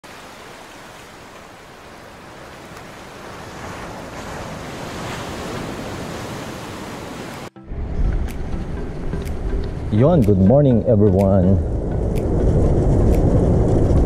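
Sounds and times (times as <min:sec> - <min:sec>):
steady rushing noise: 0:07.4 - 0:14.0.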